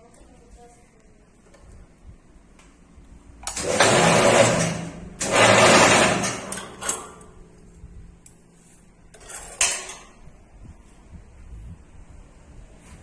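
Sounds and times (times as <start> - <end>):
rebar machine metallic rush: 3.5 - 7.1.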